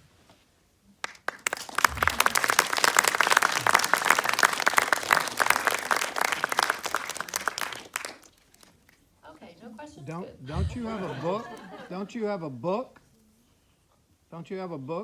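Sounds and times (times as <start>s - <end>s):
audience applauding: 1.0s - 8.8s, 10.8s - 11.8s.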